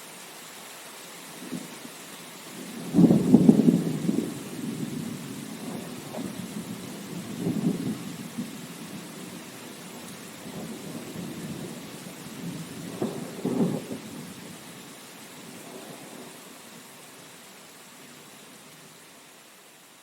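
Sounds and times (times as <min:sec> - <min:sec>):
steady rain: 0:00.0 - 0:20.0
rolling thunder: 0:02.6 - 0:14.6.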